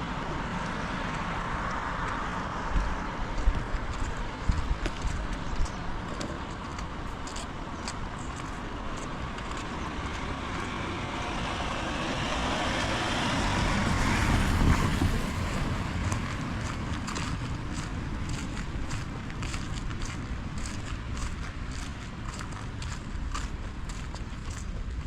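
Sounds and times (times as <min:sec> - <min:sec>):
car passing on wet road: 0:00.0 - 0:03.4, 0:09.1 - 0:20.0
footsteps on wet pavement: 0:00.0 - 0:25.0.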